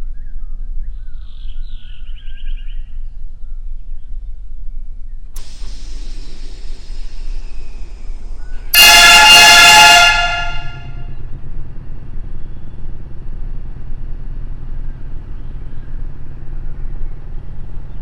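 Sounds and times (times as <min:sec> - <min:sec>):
train horn: 0:05.4 - 0:11.1
train rumbling: 0:05.4 - 0:12.3.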